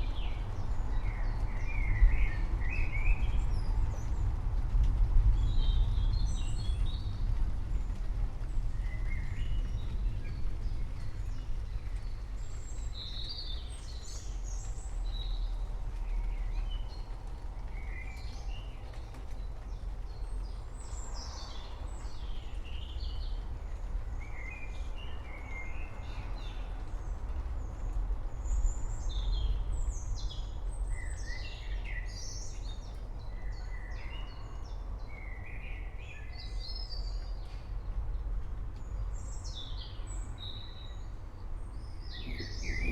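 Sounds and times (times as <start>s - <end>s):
continuous low rumble: 0.0s - 42.9s
songbirds chirping and singing: 41.8s - 42.9s.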